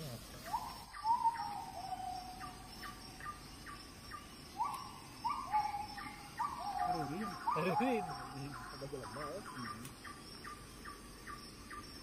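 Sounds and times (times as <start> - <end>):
bird calling: 0.0 - 12.0.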